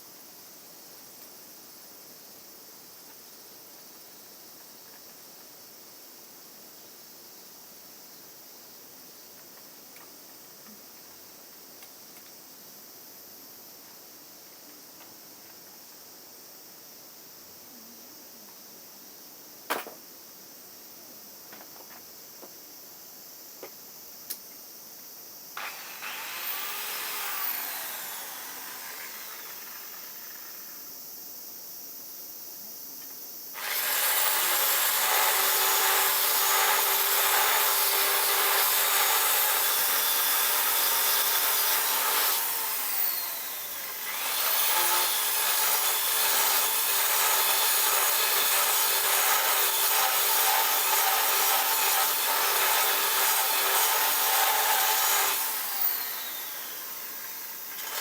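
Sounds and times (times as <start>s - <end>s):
power tool rasping: 25.6s - 30.4s, 33.6s - 58.0s.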